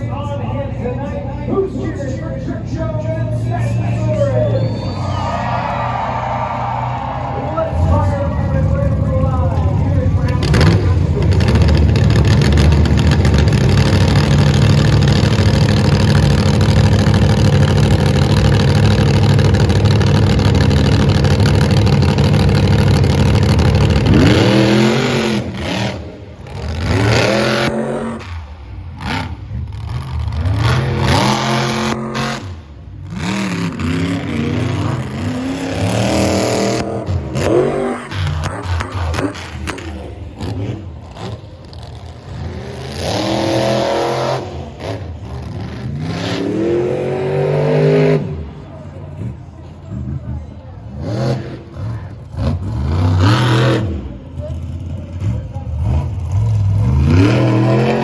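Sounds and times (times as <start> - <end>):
monster truck engines revving: 0.0 - 58.0.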